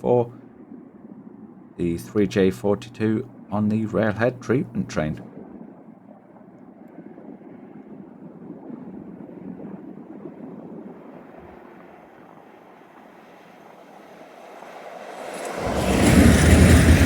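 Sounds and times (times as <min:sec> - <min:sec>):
diesel locomotives rumbling: 0:15.0 - 0:17.0.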